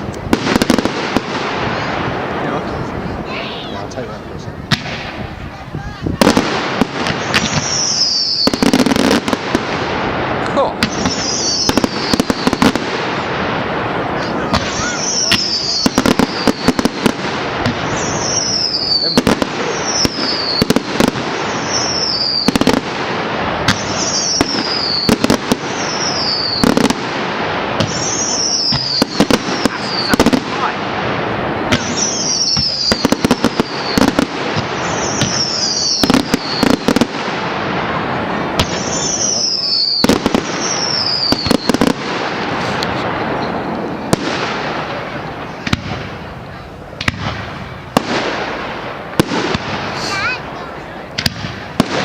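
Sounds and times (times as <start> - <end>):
firework bangs: 0.0 - 52.0
firework crackling: 0.0 - 52.0
falling firework whistles: 7.0 - 9.4, 10.8 - 12.9, 14.2 - 22.9, 23.6 - 27.0, 27.8 - 30.4, 31.7 - 37.2, 38.6 - 46.2, 49.2 - 50.4.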